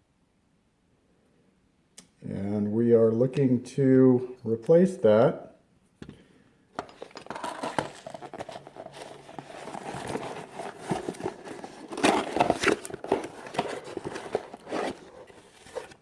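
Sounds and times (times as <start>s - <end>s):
plastic packaging crinkling: 6.8s - 16.0s.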